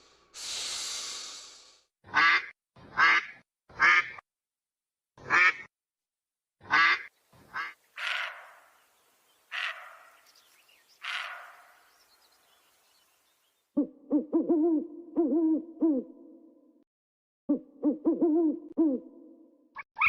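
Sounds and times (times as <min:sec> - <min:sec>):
duck quacking: 0:02.1 - 0:04.2, 0:05.2 - 0:05.7, 0:06.6 - 0:08.4
owl hooting: 0:13.8 - 0:16.1, 0:17.8 - 0:19.1.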